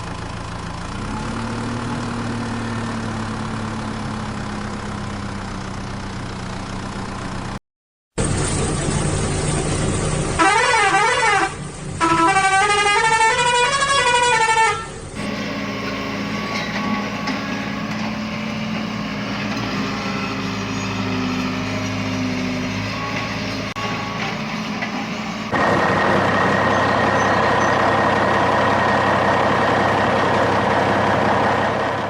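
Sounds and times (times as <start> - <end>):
heavy engine running: 0.0 - 7.6, 8.2 - 32.0
vehicle engine running: 0.0 - 7.6, 8.2 - 32.0
wavering horn blasts: 10.4 - 17.6.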